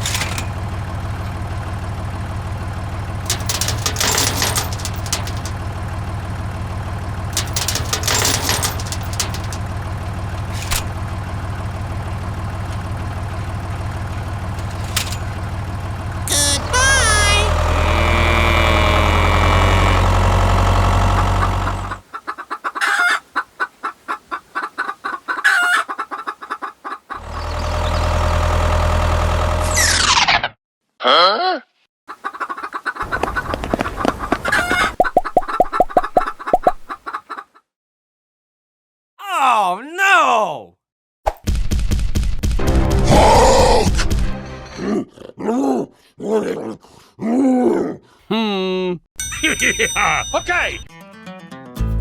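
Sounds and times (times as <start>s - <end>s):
small engine humming: 0.0s - 22.0s, 27.2s - 29.8s, 33.0s - 35.0s
chickens clucking: 20.9s - 27.4s, 32.1s - 37.6s.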